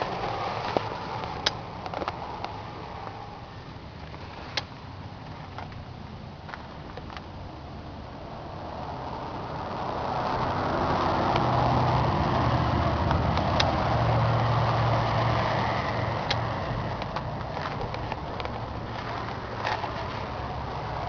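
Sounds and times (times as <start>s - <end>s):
tractor diesel engine running: 0.0s - 21.0s
sharp ticks: 0.6s - 3.2s.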